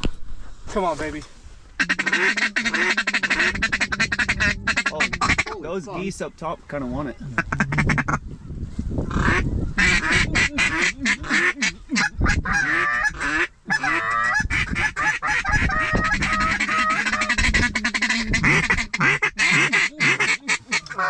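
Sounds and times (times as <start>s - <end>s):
geese honking: 1.8s - 5.6s, 7.3s - 8.2s, 9.1s - 21.0s
ducks quacking: 1.8s - 6.0s, 7.2s - 8.2s, 9.1s - 21.0s.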